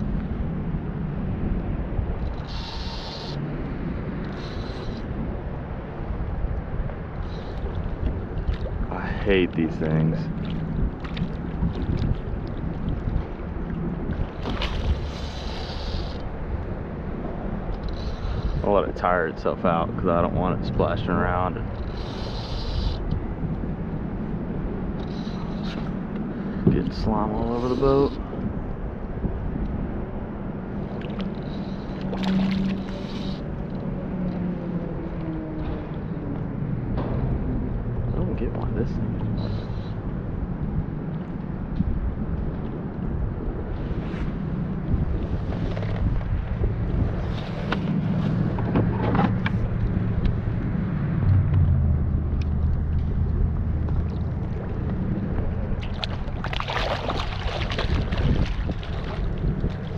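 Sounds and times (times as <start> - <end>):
boat motor humming: 0.0 - 59.9
water lapping around kayak: 0.0 - 59.9
wind: 0.0 - 59.9
splashing: 7.2 - 16.2, 30.9 - 33.6, 53.5 - 59.9
low rumble: 28.2 - 59.9.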